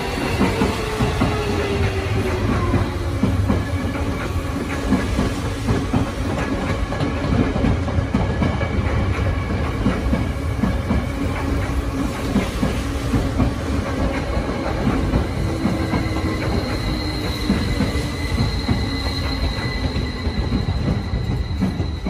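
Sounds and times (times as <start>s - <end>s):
train wheels clattering: 0.0s - 22.0s
high wheel squeal: 15.4s - 22.0s.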